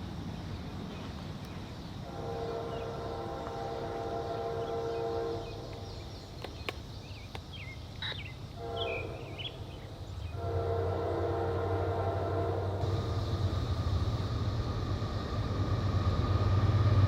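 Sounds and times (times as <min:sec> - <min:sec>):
birds chirping: 0:00.0 - 0:13.5
low engine rumble: 0:00.0 - 0:17.0
locomotive air horn: 0:02.0 - 0:05.8, 0:08.6 - 0:09.7, 0:10.3 - 0:13.2.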